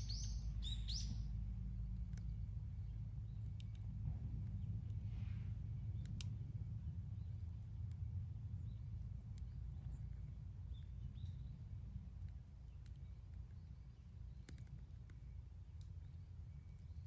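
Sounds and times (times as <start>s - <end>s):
campfire crackling and popping: 6.0s - 6.6s, 14.3s - 16.1s.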